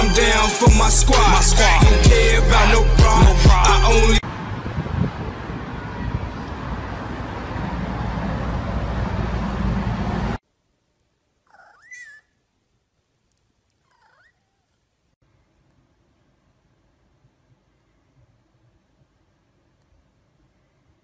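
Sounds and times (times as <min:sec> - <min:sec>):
cat meowing: 0:13.9 - 0:14.7.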